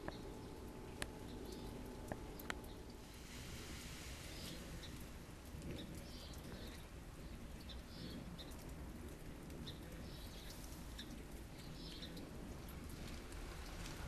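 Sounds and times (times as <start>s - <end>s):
small birds chirping: 0.0s - 3.0s, 4.2s - 8.8s, 9.4s - 13.1s
low steady rumble: 0.0s - 14.0s.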